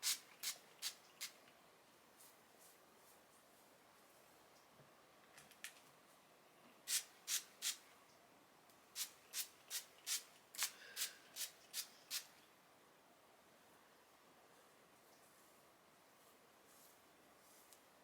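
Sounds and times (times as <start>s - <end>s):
spray bottle spritzing: 0.0s - 1.4s, 6.9s - 7.8s, 9.0s - 12.3s.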